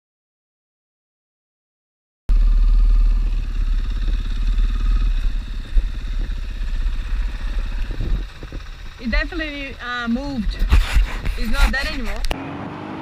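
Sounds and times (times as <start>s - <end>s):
motorcycle engine running: 2.3s - 12.4s.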